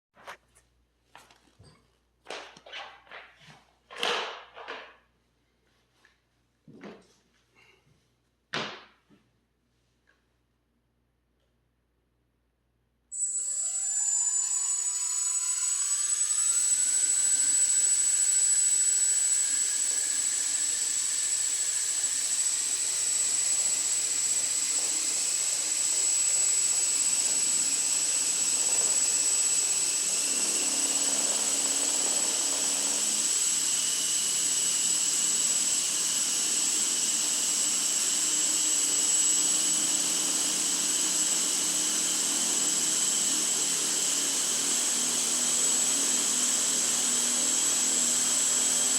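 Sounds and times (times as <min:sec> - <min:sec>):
model helicopter rotors whining: 0:13.2 - 0:48.9.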